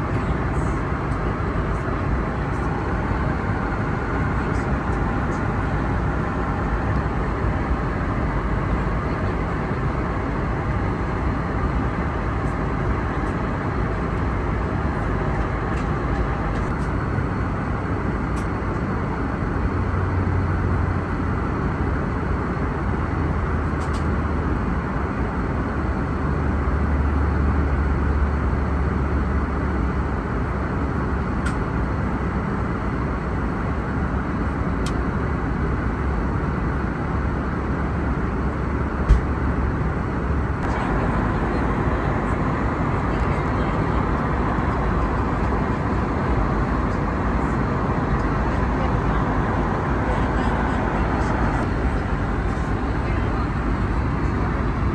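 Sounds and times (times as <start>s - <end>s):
airliner cabin engine rumble: 0.0s - 54.9s.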